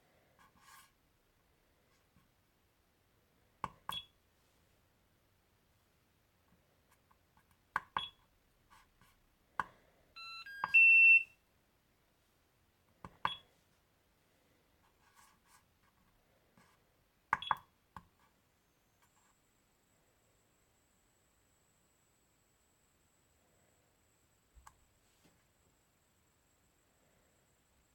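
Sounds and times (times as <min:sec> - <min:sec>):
short key beeps: 0:10.2 - 0:11.3
loud steady high beep: 0:10.2 - 0:11.4
short electronic tones: 0:10.2 - 0:11.4.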